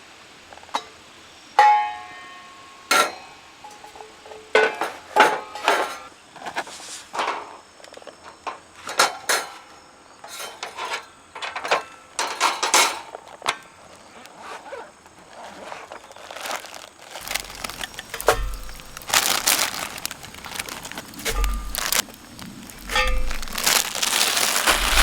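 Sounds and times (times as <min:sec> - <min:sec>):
camp gear rustling and crinkling: 0:10.3 - 0:25.0
dull low thumps: 0:17.2 - 0:24.0, 0:24.7 - 0:25.0.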